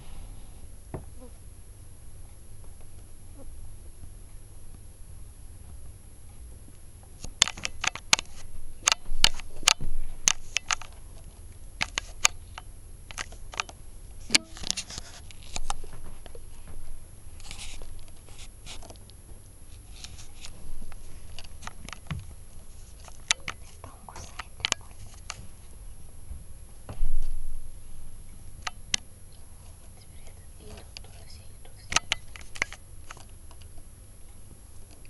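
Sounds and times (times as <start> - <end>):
sharp clicks and taps: 6.7 - 11.0, 23.0 - 25.4, 31.9 - 33.7
scratches: 14.2 - 15.9, 17.4 - 19.0, 19.7 - 22.0.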